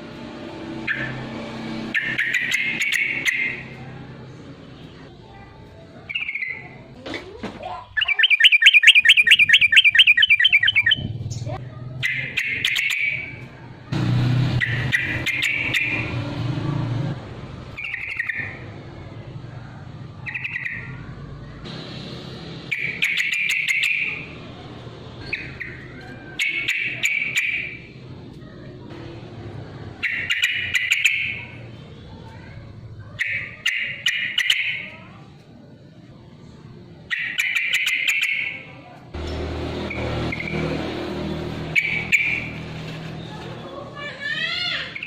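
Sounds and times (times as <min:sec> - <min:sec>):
bulbul singing bubbly phrases: 0:07.7 - 0:13.4
sharp bird clicks: 0:12.0 - 0:13.3.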